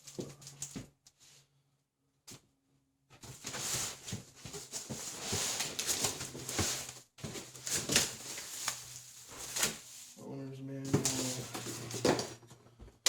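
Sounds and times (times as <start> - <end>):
cardboard and packing rustling: 3.2 - 10.2, 10.8 - 12.5.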